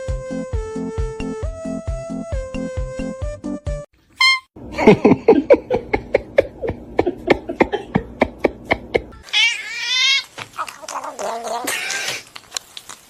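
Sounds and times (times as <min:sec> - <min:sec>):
cat meowing: 0:09.2 - 0:12.2.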